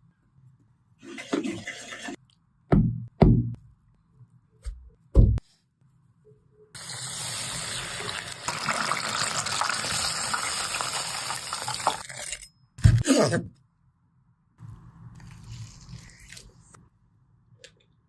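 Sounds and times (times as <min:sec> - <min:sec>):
water tap running: 0:06.8 - 0:12.0.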